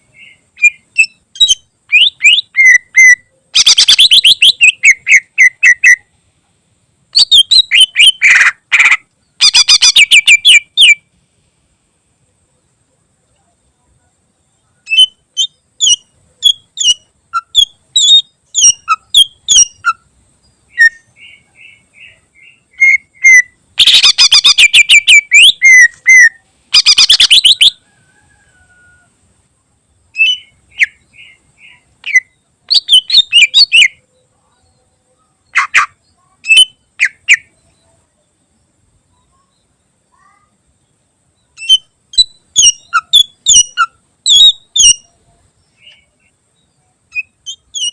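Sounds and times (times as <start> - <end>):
bird singing whistled notes: 0.0 - 6.2, 7.1 - 11.1, 14.5 - 28.4, 30.1 - 38.0, 41.4 - 47.9
harsh rattling bird trills: 0.1 - 6.1, 7.2 - 11.1, 14.8 - 29.0, 30.2 - 34.0, 41.6 - 45.1, 47.1 - 47.9.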